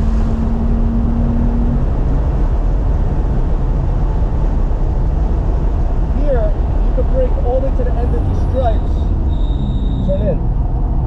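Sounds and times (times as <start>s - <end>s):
road and wind noise: 0.0s - 11.0s
steady engine tone: 6.5s - 11.0s.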